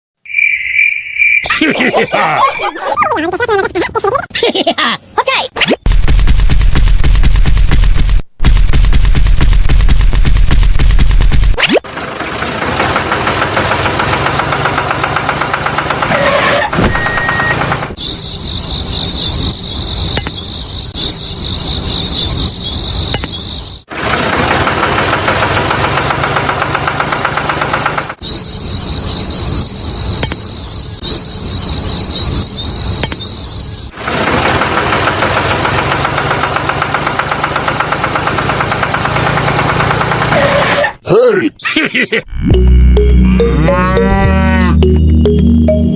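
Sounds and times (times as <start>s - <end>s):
tractor engine chugging: 11.9s - 16.4s, 23.9s - 28.6s, 33.6s - 40.8s.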